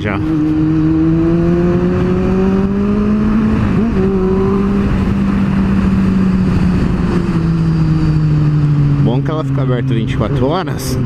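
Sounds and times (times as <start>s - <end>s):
motorcycle engine and exhaust: 0.0s - 11.0s.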